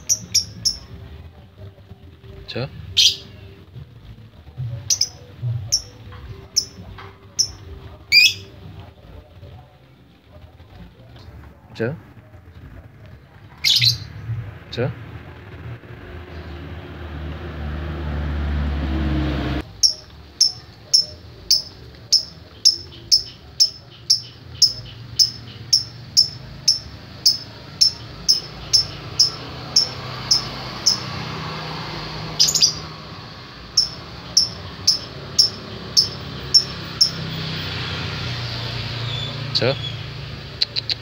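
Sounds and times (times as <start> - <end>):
lovebird chirping: 0.0 - 1.0, 4.8 - 6.8, 7.4 - 8.5, 19.6 - 31.3, 32.3 - 37.6.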